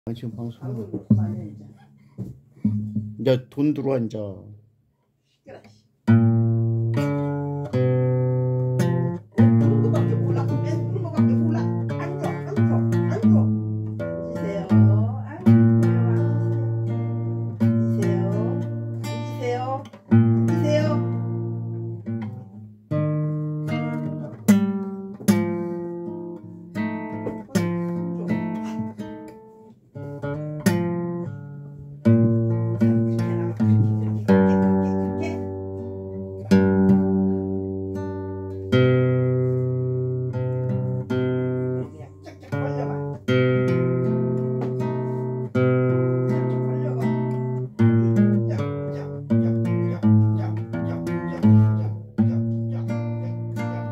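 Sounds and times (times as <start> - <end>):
acoustic guitar strumming: 0.7 - 4.8, 6.0 - 53.9.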